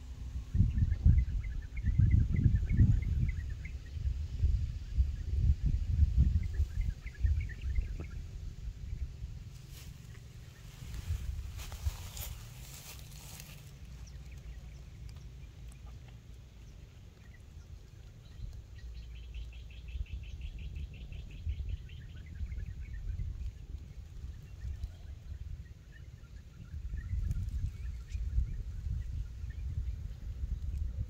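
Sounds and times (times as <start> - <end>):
low outdoor rumble: 0.0 - 31.0.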